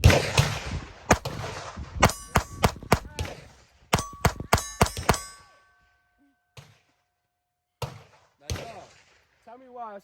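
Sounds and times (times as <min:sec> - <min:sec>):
pistol shots: 0:00.0 - 0:05.5
metallic ringing: 0:02.0 - 0:02.9, 0:03.9 - 0:06.6.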